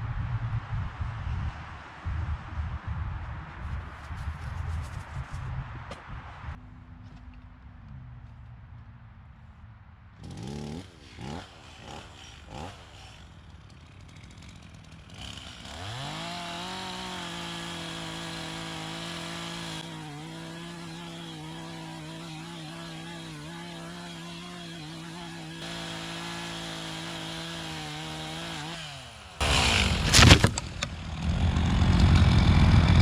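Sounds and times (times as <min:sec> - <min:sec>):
chainsaw engine running: 0:10.2 - 0:33.0.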